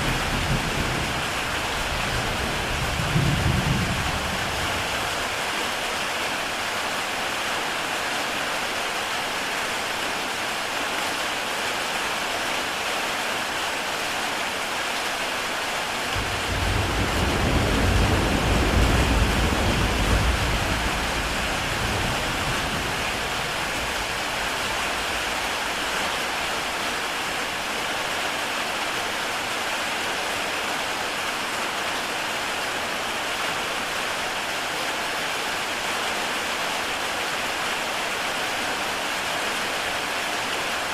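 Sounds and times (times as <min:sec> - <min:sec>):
distant thunder rumble: 0:00.0 - 0:05.1, 0:16.2 - 0:25.9
heavy rain on a tile roof: 0:00.0 - 0:40.9.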